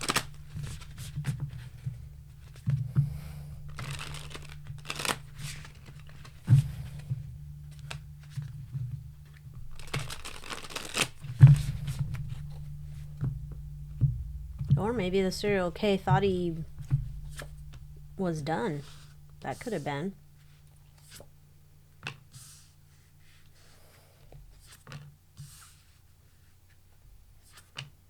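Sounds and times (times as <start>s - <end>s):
cards being shuffled: 9.8s - 11.1s.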